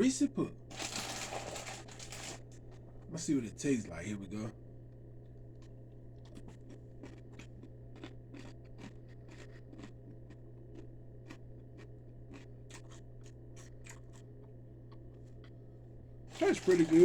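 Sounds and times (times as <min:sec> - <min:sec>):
low steady hum: 0:00.0 - 0:17.0
person chewing crunchy cereal: 0:00.7 - 0:02.5, 0:05.6 - 0:15.6, 0:16.3 - 0:17.0.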